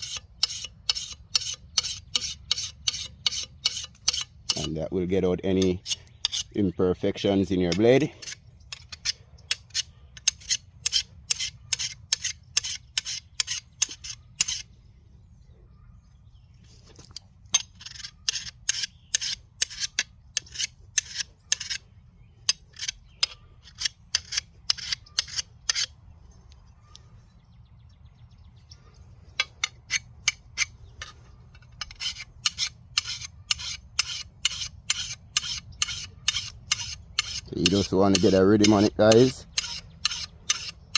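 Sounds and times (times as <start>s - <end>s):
file rasping on steel blade: 0.0s - 4.7s, 5.8s - 6.6s, 8.2s - 14.7s, 17.6s - 21.8s, 22.5s - 25.9s, 29.4s - 40.9s.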